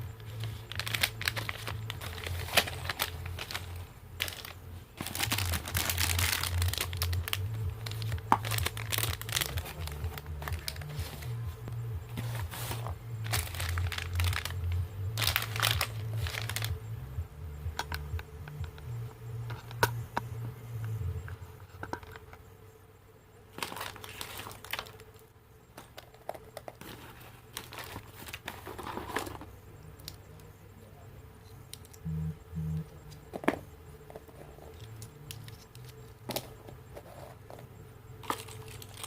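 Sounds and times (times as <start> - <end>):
packaging tearing: 0.2 - 11.2, 12.2 - 16.7, 23.6 - 25.0
packaging crinkling and rustling: 0.2 - 11.4, 12.1 - 16.8, 23.6 - 25.2, 25.8 - 29.6, 38.2 - 39.0
bass-heavy music: 5.1 - 21.3, 32.0 - 33.3.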